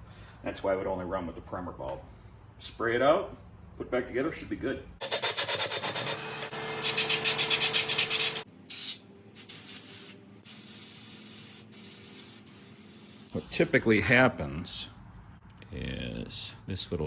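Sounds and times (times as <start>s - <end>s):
aerosol spraying: 5.0s - 6.2s, 6.8s - 13.3s.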